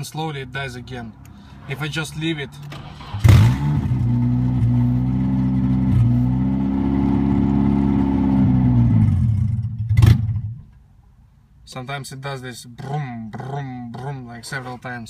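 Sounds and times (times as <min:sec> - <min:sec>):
car engine running: 0:01.4 - 0:10.6
sharp thump: 0:09.4 - 0:10.6.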